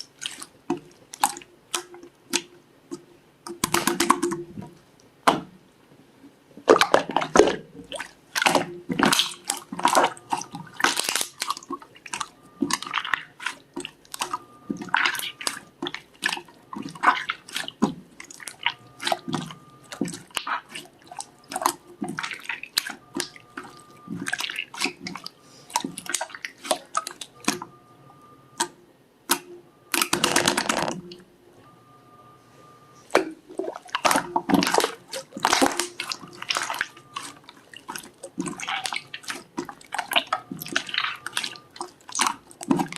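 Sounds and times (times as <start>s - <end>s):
slime squishing by hand: 6.6s - 27.7s, 30.0s - 31.1s, 33.1s - 42.9s.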